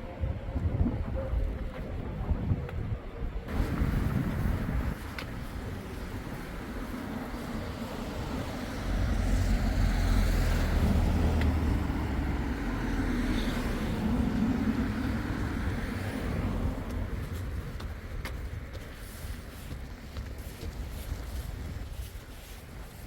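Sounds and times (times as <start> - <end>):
vehicle passing by: 5.9 - 17.2.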